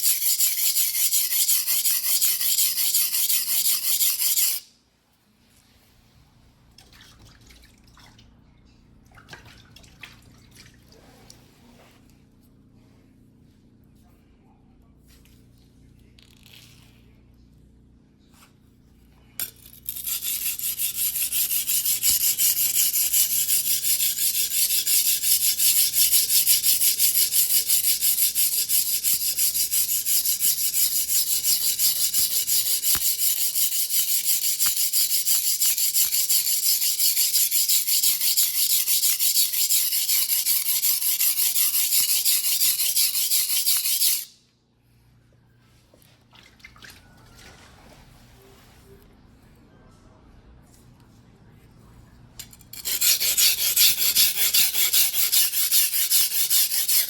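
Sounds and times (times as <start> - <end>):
knife scraping on whetstone: 0.0 - 4.7, 19.6 - 44.3, 52.4 - 57.0.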